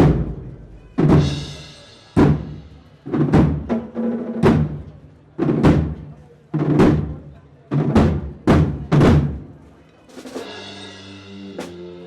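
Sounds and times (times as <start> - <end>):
bass drum and cymbals: 0.0 - 4.9, 10.1 - 12.0.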